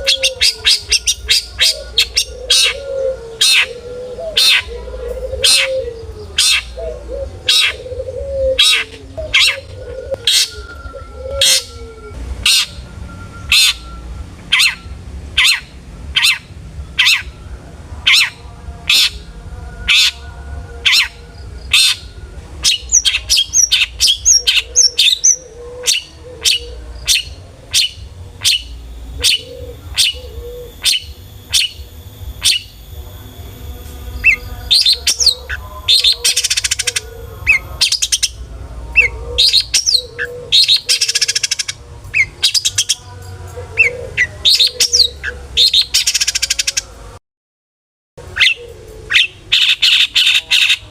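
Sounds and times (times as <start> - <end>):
shrike repeated sharp calls: 11.4 - 17.4.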